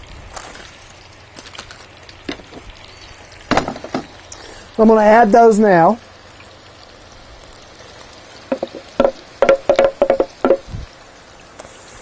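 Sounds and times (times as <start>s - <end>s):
faint steady hiss: 0.0s - 12.0s
metal clinks and taps: 8.5s - 10.6s.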